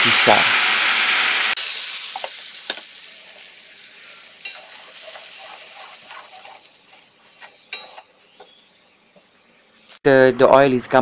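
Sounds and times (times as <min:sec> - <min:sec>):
chili paste sizzling in oil: 0:00.0 - 0:10.0
spatula scraping wok: 0:01.6 - 0:09.9.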